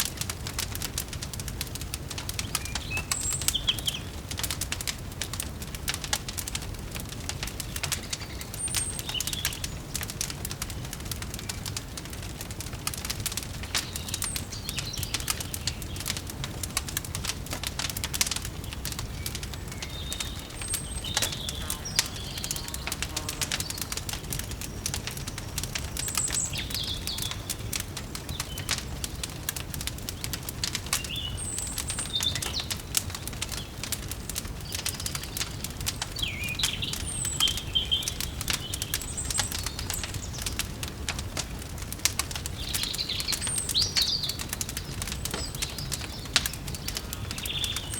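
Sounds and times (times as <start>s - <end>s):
wood fire crackling and popping: 0.0s - 47.9s
birds chirping: 2.4s - 4.2s, 7.6s - 10.1s, 13.4s - 16.2s, 17.8s - 40.6s, 42.4s - 47.9s.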